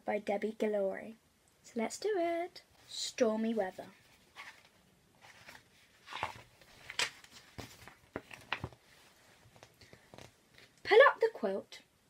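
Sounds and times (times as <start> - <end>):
picture book pages rustling: 2.7 - 10.8.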